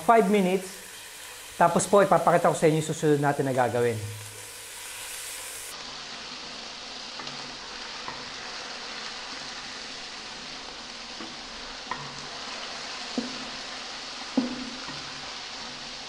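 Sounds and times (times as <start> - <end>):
chicken sizzling in hot oil: 0.0 - 16.0
wooden spatula tapping pan: 11.2 - 12.2, 13.1 - 13.5, 14.3 - 15.1.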